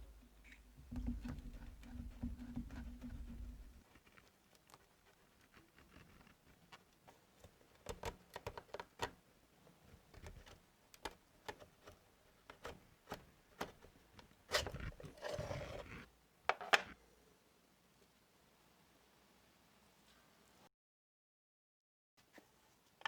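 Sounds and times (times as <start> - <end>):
clicks and knocks on metal box: 0.1 - 3.8
rough scraping on metal: 14.5 - 16.1.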